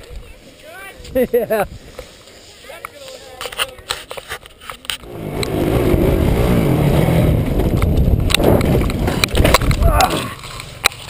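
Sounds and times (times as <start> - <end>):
dirt bike engine running: 5.0 - 11.0.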